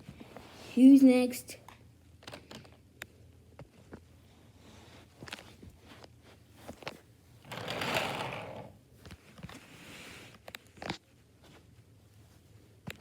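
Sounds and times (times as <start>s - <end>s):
toy train motor whirring: 7.4s - 8.7s.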